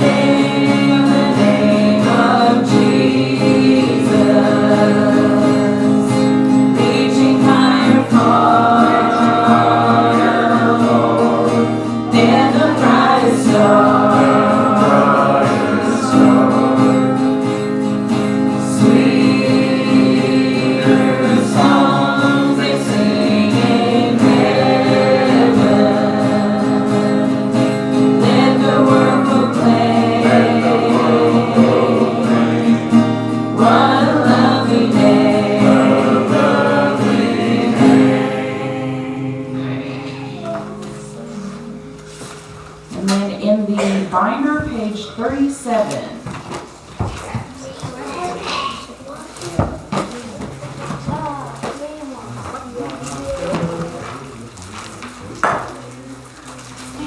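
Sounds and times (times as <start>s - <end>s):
instrumental accompaniment: 0.0s - 44.9s
congregation singing a hymn: 0.0s - 46.4s.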